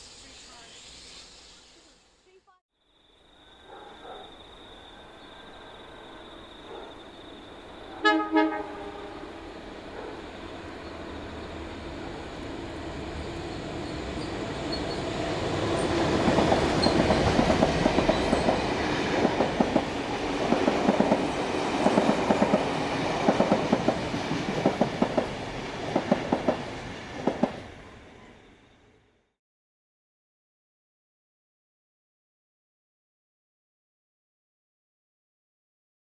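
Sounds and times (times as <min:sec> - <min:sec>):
passing train rumble: 0:04.8 - 0:29.1
wheels clacking over rail joints: 0:10.0 - 0:27.7.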